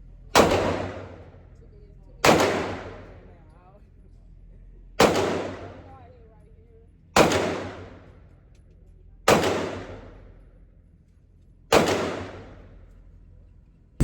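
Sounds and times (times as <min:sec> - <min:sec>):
pistol shots echoing: 0:00.4 - 0:01.3, 0:02.2 - 0:03.1, 0:05.0 - 0:05.8, 0:07.2 - 0:07.9, 0:09.3 - 0:10.1, 0:11.7 - 0:12.5.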